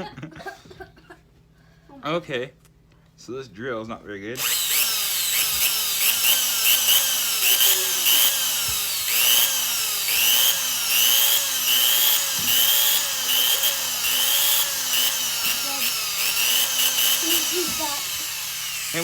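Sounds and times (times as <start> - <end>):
power drill revving: 4.4 - 19.0.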